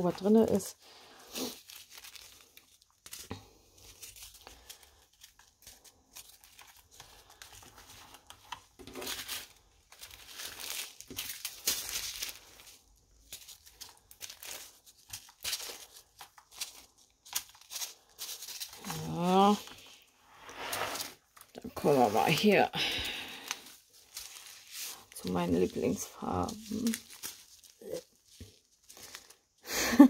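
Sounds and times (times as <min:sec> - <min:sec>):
plastic bags crinkling: 0:00.0 - 0:30.0.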